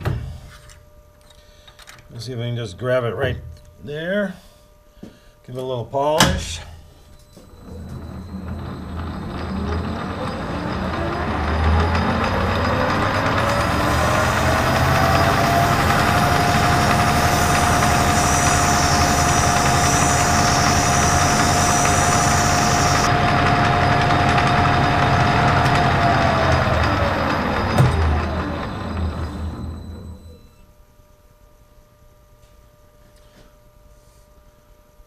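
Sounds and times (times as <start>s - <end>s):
lathe motor whine: 7.2s - 30.5s
abrasive hissing on spinning steel: 12.5s - 23.1s.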